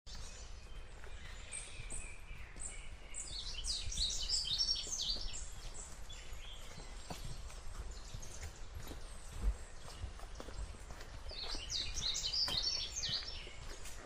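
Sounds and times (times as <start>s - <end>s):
songbirds chirping: 0.1s - 14.0s.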